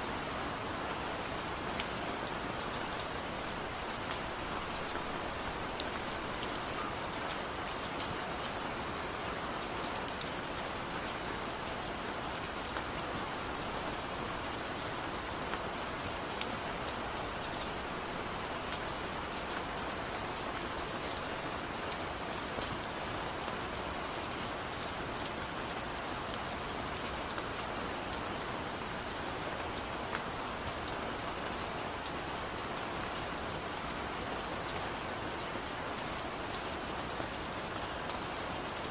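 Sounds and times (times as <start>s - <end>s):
steady rain falling: 0.0s - 38.9s
raindrops ticking on surfaces: 0.1s - 38.9s.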